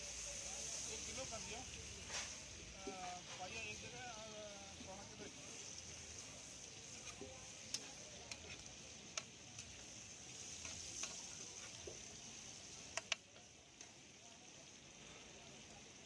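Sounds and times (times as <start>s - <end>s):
food sizzling in hot oil: 0.0s - 16.0s
spatula clicking on griddle: 6.9s - 9.9s, 10.5s - 11.9s, 12.9s - 13.9s.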